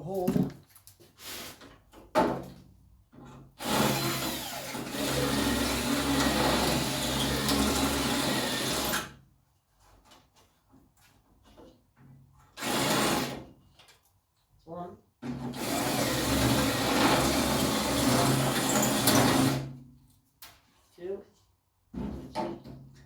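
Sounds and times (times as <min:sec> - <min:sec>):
power drill drilling: 0:03.6 - 0:09.1, 0:12.6 - 0:13.4, 0:15.5 - 0:19.7.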